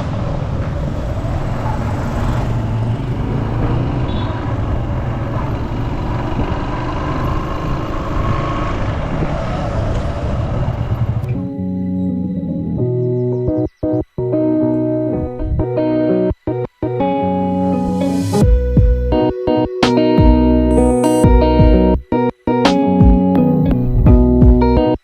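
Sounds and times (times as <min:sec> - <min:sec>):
road traffic rumble: 0:00.0 - 0:22.1
music: 0:11.3 - 0:25.0.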